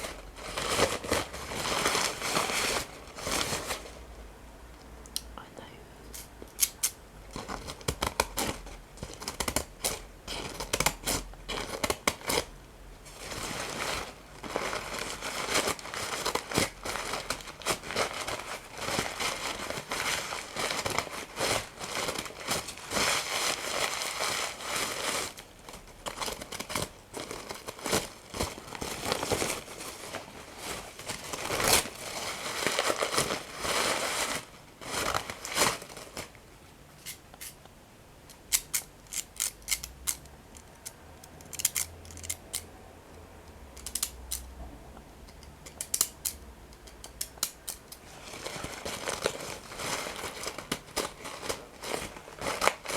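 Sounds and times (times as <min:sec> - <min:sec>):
paper crumpling and crinkling: 0:00.0 - 0:04.0, 0:13.1 - 0:36.4, 0:48.0 - 0:52.9.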